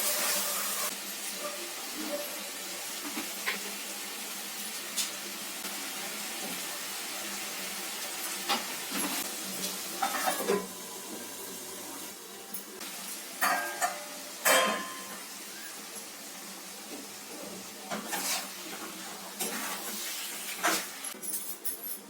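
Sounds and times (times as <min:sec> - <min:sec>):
spices sizzling in a pan: 0:00.0 - 0:21.2.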